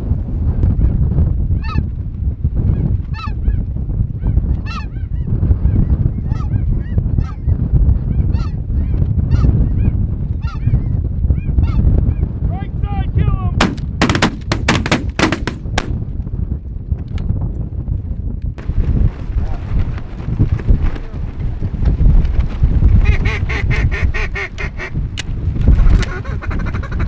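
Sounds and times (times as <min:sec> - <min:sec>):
wind rumble on microphone: 0:00.0 - 0:27.0
rapid shotgun fire: 0:13.6 - 0:16.0.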